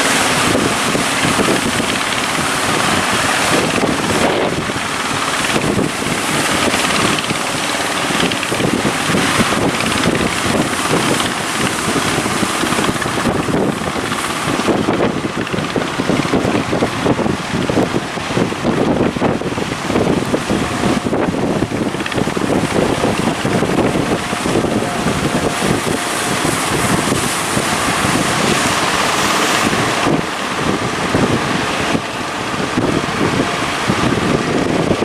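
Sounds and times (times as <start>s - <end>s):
boat engine running: 0.0s - 35.0s
breaking surf: 0.0s - 35.0s
wind buffeting microphone: 0.0s - 35.0s.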